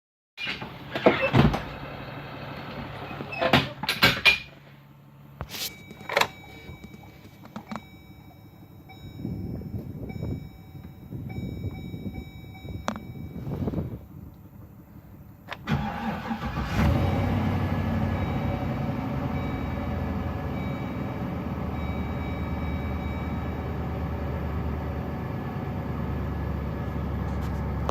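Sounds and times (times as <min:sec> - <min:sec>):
sliding door running and shutting: 0:00.4 - 0:01.9
steady high tone: 0:05.4 - 0:14.0.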